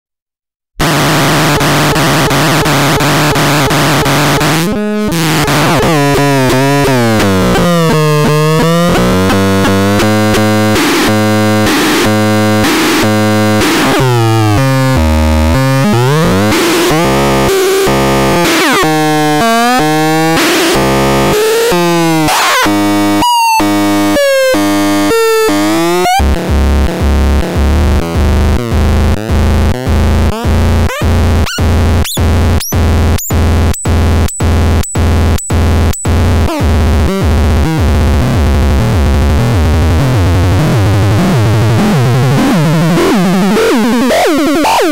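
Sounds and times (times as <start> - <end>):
synthesizer tones sliding in pitch: 1.0 - 11.6, 12.4 - 26.2.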